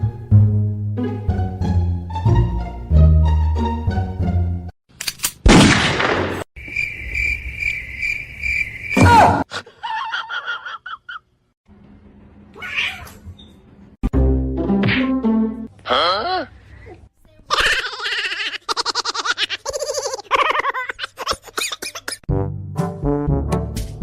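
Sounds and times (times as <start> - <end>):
cat meowing: 12.6 - 13.2
plucked-string music: 14.0 - 15.7.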